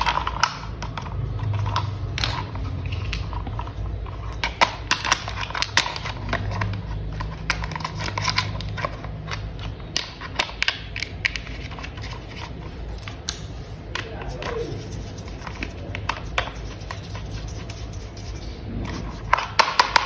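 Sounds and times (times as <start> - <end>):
plastic toy parts clicking: 0.0 - 18.5, 19.2 - 20.0
low steady hum: 0.0 - 20.0.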